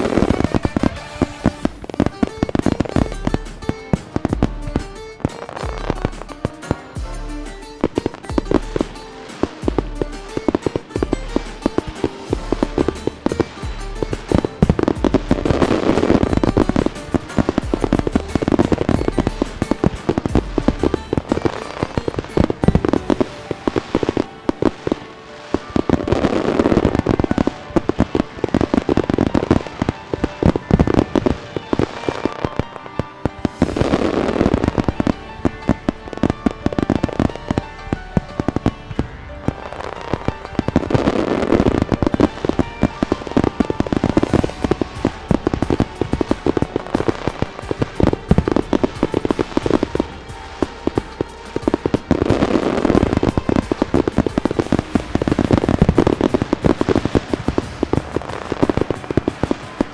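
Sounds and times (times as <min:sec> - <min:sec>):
fireworks bangs and crackles: 0:00.0 - 0:59.9
music playing: 0:00.0 - 0:59.9.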